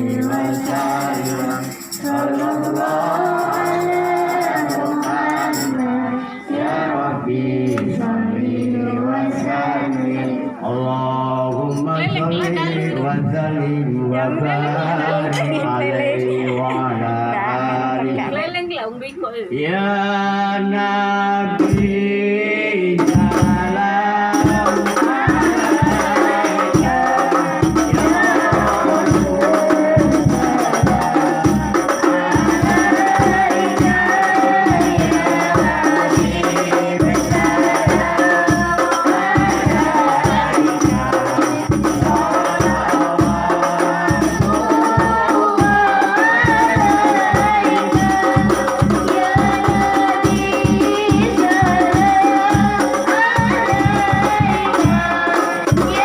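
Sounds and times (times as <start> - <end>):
frame drums beating: 0.0 - 5.8, 21.6 - 22.0, 23.0 - 56.0
voices singing: 0.0 - 56.0.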